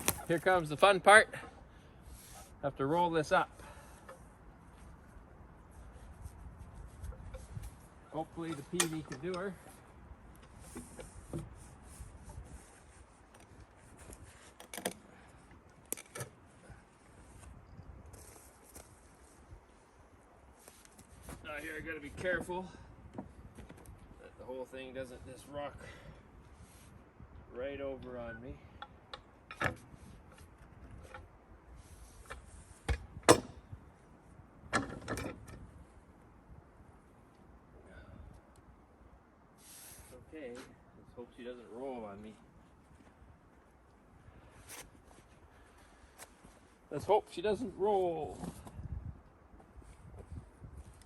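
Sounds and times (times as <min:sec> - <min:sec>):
wood scraping and rubbing: 0:05.7 - 0:15.0.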